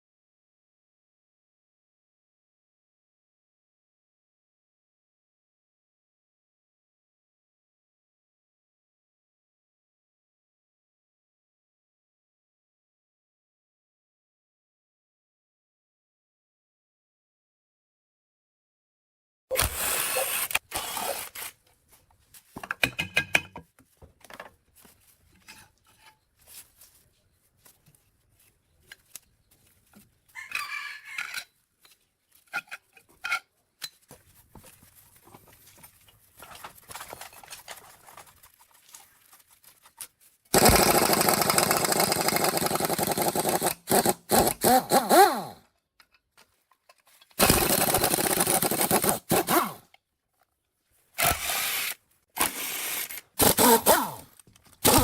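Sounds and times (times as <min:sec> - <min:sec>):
power tool bursts: 0:19.5 - 0:21.6, 0:40.5 - 0:45.6, 0:47.4 - 0:49.8, 0:51.2 - 0:55.0
clinks and knocks on metal: 0:22.6 - 0:23.7.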